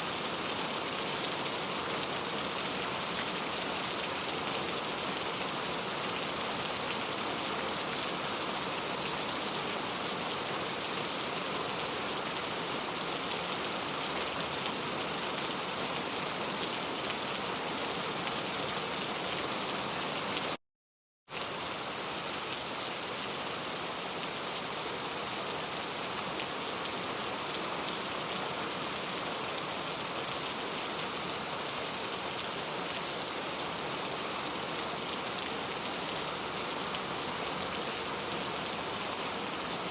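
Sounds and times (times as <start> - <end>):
steady rainfall: 0.0 - 20.6, 21.3 - 39.9.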